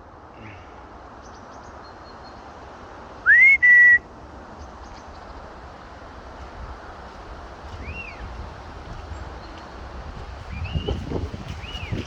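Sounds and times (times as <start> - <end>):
person whistling: 3.3 - 4.0
wind noise: 5.1 - 12.0.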